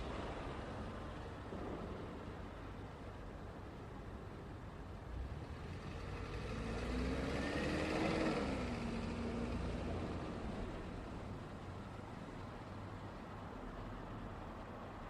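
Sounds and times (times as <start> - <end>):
road traffic rumble: 0.0 - 15.0
vehicle passing by: 5.1 - 11.6.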